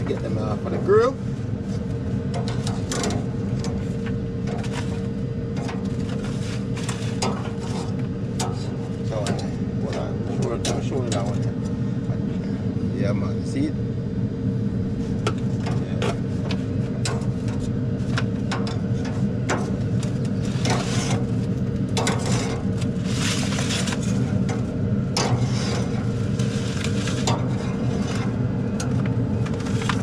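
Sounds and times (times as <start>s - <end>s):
steady low rumble: 0.0s - 30.0s
grill clicks and scrapes: 2.3s - 9.5s, 15.6s - 30.0s.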